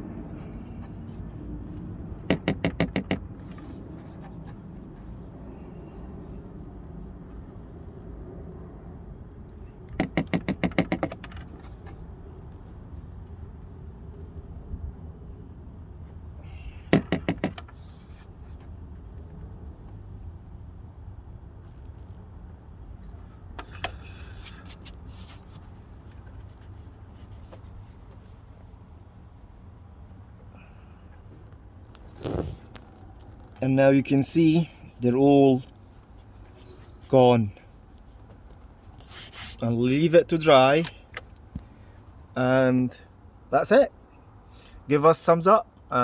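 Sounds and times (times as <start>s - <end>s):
sharp taps: 2.3s - 3.6s, 9.9s - 11.4s, 16.9s - 17.7s.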